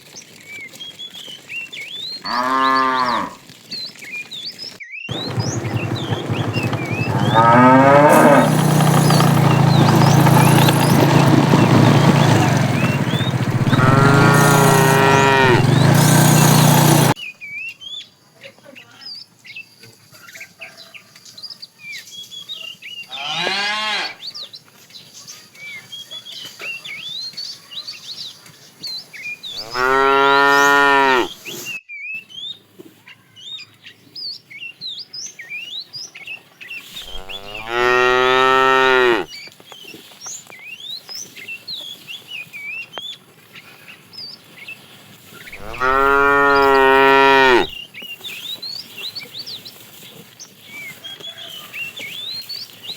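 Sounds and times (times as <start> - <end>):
cattle mooing: 2.3 - 3.4, 5.1 - 17.2, 23.2 - 24.2, 29.6 - 31.3, 37.0 - 39.3, 45.5 - 47.8.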